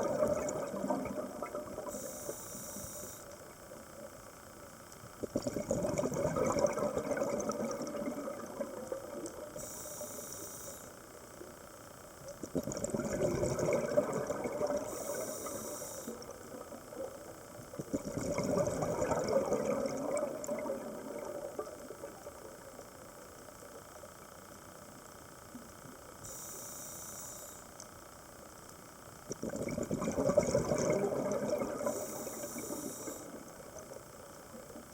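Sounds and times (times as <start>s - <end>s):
bubbling underwater exhalations: 0.0s - 1.9s, 5.3s - 8.9s, 12.5s - 15.0s, 17.8s - 21.4s, 29.3s - 32.0s
regulator hiss: 0.0s - 5.7s, 7.6s - 12.6s, 14.0s - 18.1s, 20.9s - 29.8s, 30.6s - 34.9s.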